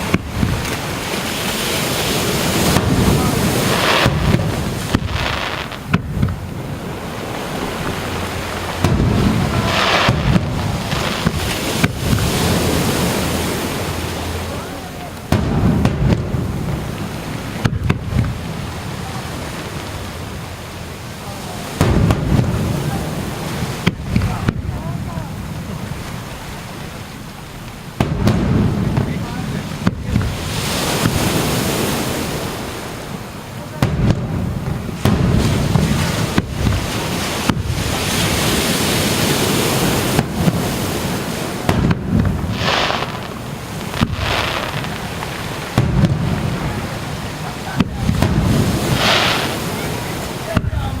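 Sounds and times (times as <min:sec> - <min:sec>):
wind on microphone: 0:00.0 - 0:14.7, 0:28.0 - 0:51.0
fireworks bangs: 0:00.0 - 0:26.2, 0:27.6 - 0:51.0
steady hiss: 0:00.0 - 0:51.0
surf rumble: 0:00.0 - 0:51.0.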